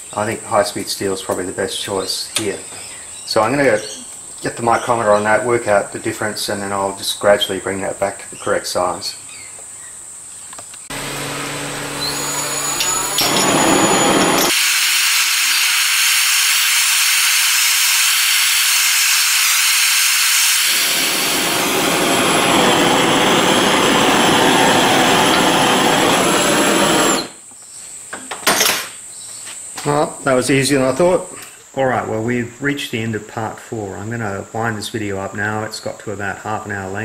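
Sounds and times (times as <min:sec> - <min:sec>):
low hum: 0:10.9 - 0:14.5, 0:20.7 - 0:27.3
gas blowtorch hissing: 0:10.9 - 0:27.4.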